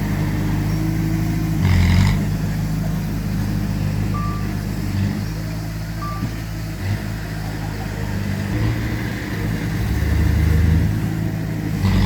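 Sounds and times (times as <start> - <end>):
diesel engine running: 0.0 - 12.0
reversing beep: 4.0 - 4.6, 6.0 - 6.5.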